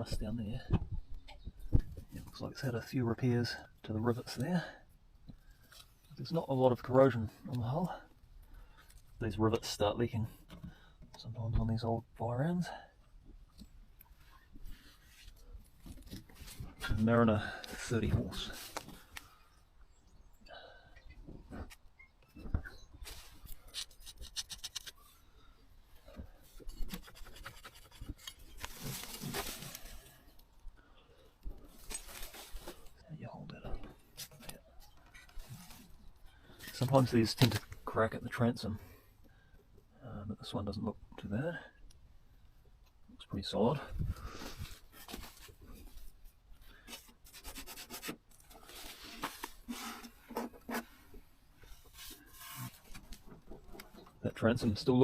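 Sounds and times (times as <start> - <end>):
scraping and rubbing: 23.1 - 25.2, 26.4 - 30.2, 46.8 - 54.0
faint rubbing and scraping: 26.0 - 30.4, 31.5 - 38.0, 44.0 - 55.0.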